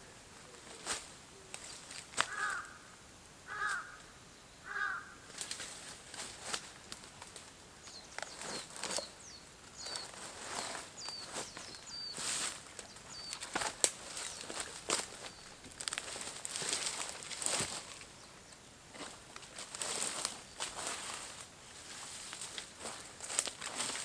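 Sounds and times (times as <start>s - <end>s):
crow cawing: 2.2s - 5.3s
small bird chirping: 7.8s - 15.6s.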